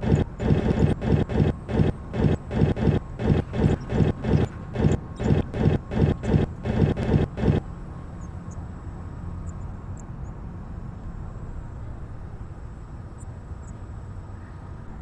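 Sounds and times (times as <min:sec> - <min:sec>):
faint ticks: 0:00.0 - 0:07.6
washing machine humming: 0:00.0 - 0:07.6.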